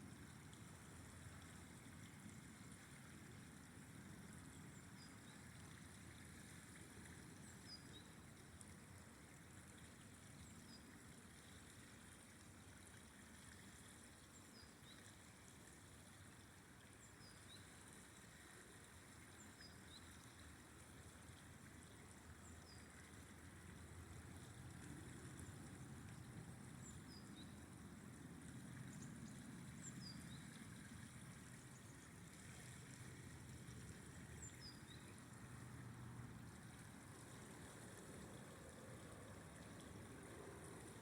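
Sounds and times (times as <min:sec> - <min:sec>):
river flowing: 0:00.0 - 0:41.0.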